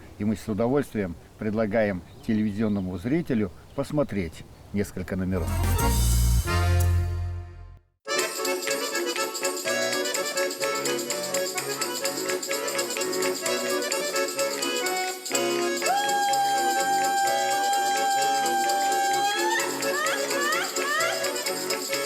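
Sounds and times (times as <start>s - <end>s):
button accordion playing folk music: 5.4s - 22.0s.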